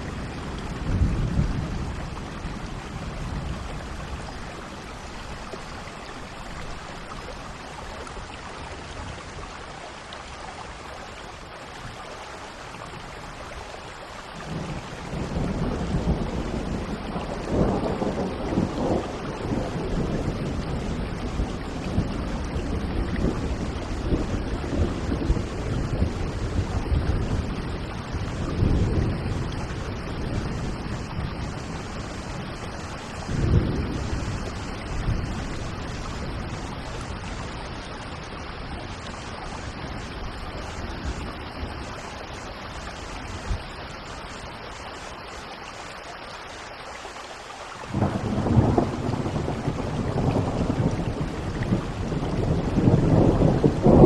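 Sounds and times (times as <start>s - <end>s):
steady rain: 0.0s - 54.0s
rolling thunder: 14.5s - 37.6s, 47.9s - 54.0s.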